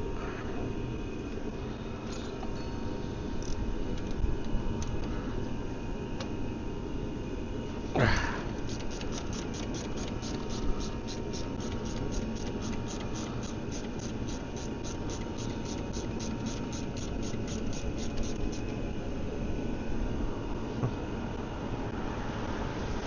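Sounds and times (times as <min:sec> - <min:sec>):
socket ratchet clicking: 0:08.6 - 0:18.7.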